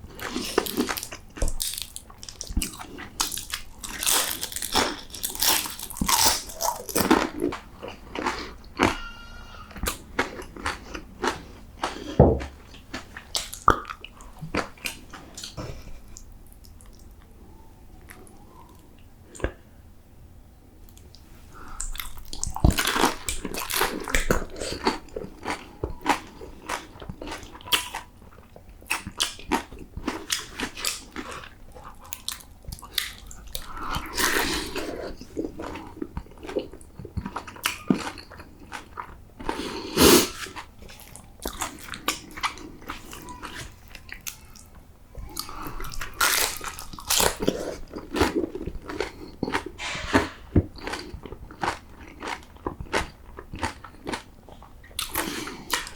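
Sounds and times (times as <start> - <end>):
crunchy biting and chewing: 0.1 - 15.6, 21.7 - 44.6, 45.2 - 55.9.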